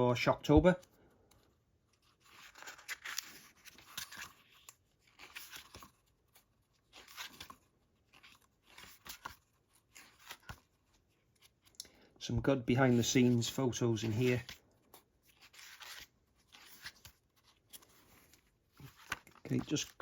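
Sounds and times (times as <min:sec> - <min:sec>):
book pages turning: 0:00.2 - 0:12.0, 0:12.6 - 0:20.0.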